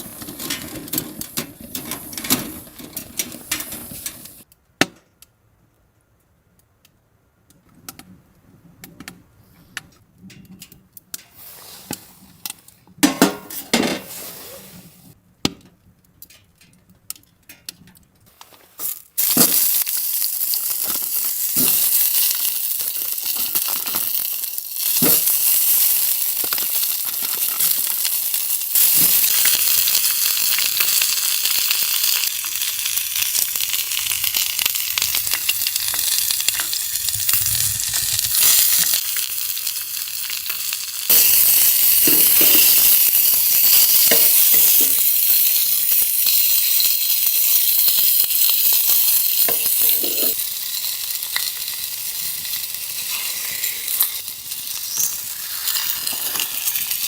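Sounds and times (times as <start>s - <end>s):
food sizzling in a pan: 18.8s - 57.0s.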